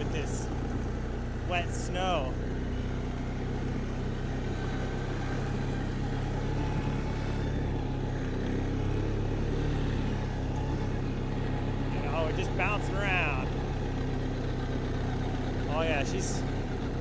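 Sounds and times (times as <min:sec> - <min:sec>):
small vehicle engine running: 0:00.0 - 0:17.0.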